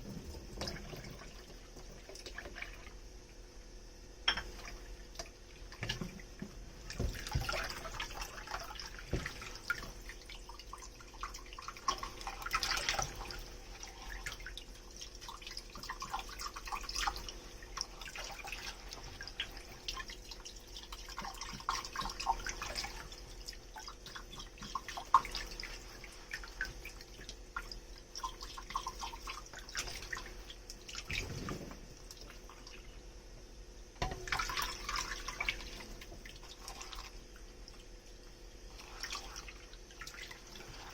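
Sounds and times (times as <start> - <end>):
running and dripping water: 0.0 - 40.9
water splashing: 34.0 - 40.9.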